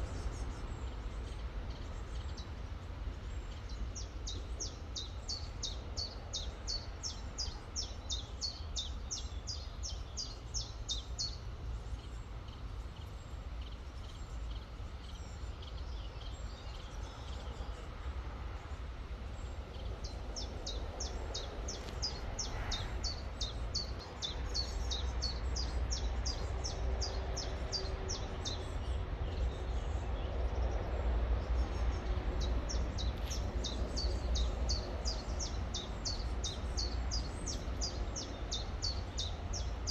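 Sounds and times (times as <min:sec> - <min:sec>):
steady low rumble: 0:11.6 - 0:39.9.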